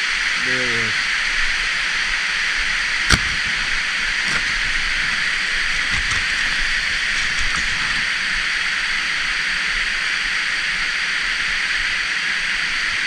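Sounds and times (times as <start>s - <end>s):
sharp click: 3.1s - 3.5s.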